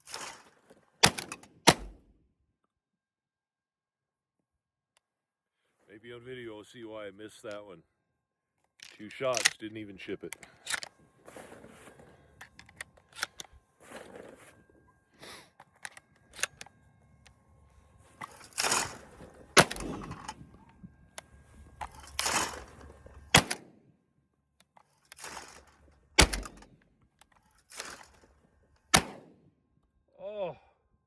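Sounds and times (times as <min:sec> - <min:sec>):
shotgun shots: 0:01.0 - 0:02.0, 0:19.6 - 0:20.3, 0:23.3 - 0:23.7, 0:26.2 - 0:26.6, 0:28.9 - 0:29.4.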